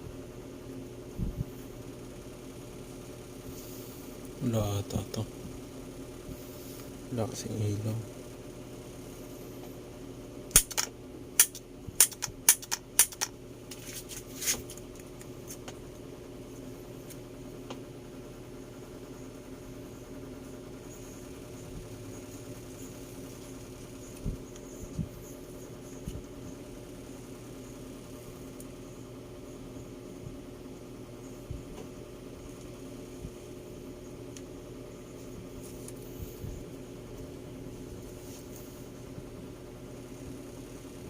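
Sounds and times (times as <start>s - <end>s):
steady low hum: 0.0s - 41.0s
appliance switch clicks: 10.5s - 13.3s.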